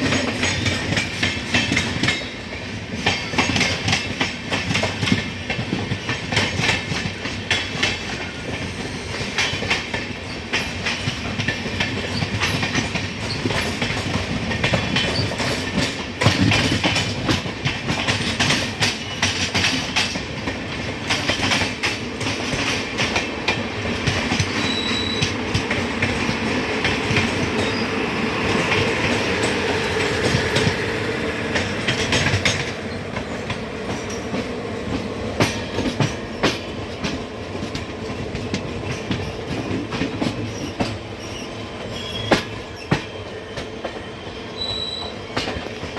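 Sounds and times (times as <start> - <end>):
train wheels clattering over rail joints: 0.0 - 45.9
faint wheel squeal: 24.5 - 25.4, 40.5 - 45.5.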